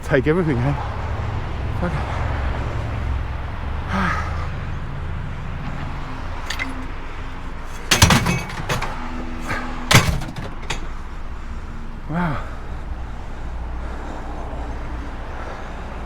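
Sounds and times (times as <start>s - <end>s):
heavy knocking clunks: 5.5s - 12.9s.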